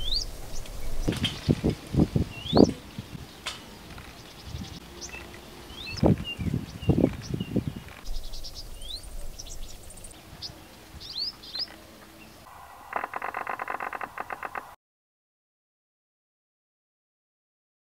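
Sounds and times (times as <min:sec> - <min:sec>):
fast rattling bird trill: 0:00.0 - 0:10.2
birds chirping and whistling: 0:00.0 - 0:14.6.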